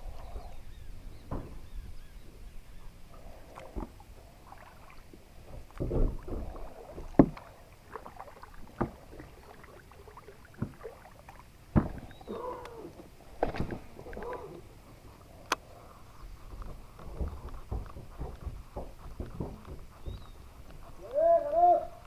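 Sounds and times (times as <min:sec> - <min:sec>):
low water noise: 0:00.0 - 0:22.0
paddle knocking on kayak hull: 0:05.7 - 0:07.5, 0:08.7 - 0:09.1.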